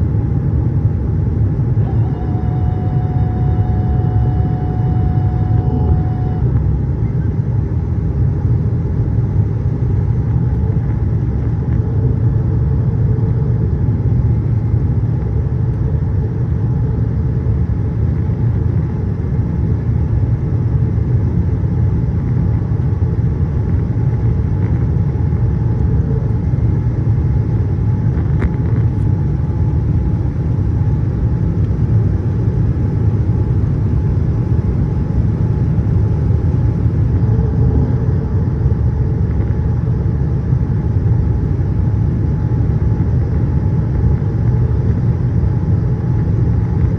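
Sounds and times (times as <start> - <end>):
airliner low rumble: 0.0 - 46.9
faint steady tone: 1.8 - 7.3.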